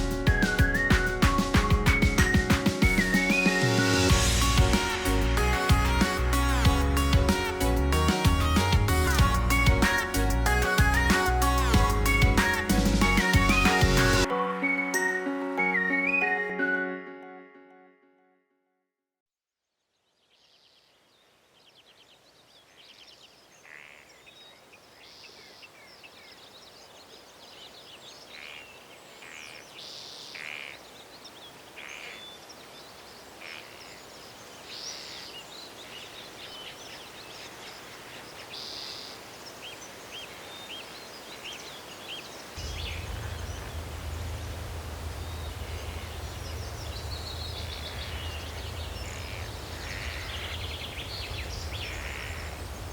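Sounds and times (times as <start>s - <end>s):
steady forest hiss: 2.5s - 14.3s, 20.3s - 52.9s
steady low rumble: 4.1s - 14.2s, 42.6s - 52.9s.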